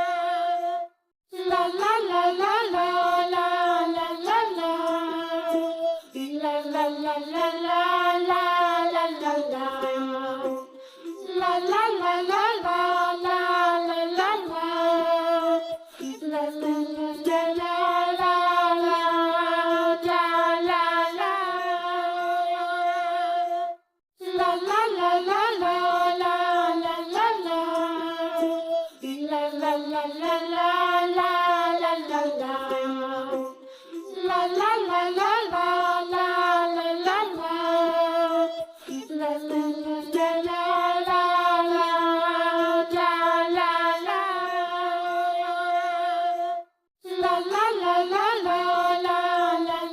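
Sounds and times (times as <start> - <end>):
child singing with music: 0.0 - 49.9.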